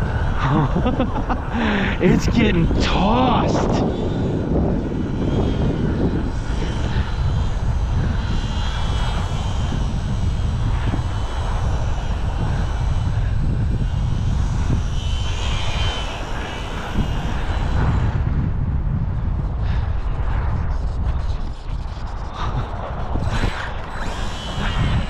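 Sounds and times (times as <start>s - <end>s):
small electric motor whining: 0.0s - 18.6s, 19.3s - 25.0s
wind buffeting microphone: 0.0s - 25.0s.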